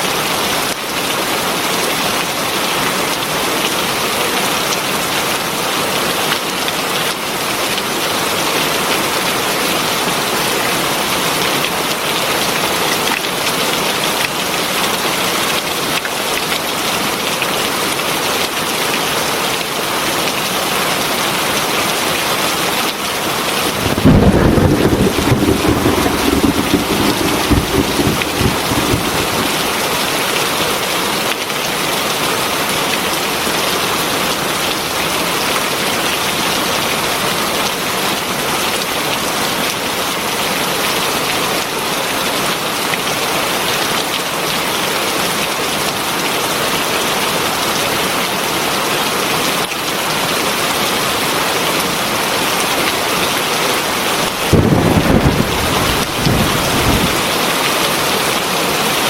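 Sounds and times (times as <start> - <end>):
heavy rain falling: 0.1 - 59.0
low thunder rumble: 23.6 - 30.6, 54.3 - 57.5.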